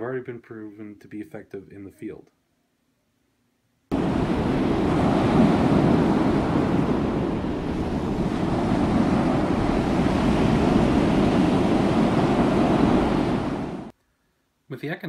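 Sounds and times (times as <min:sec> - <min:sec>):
steady rushing noise: 0:03.9 - 0:13.9.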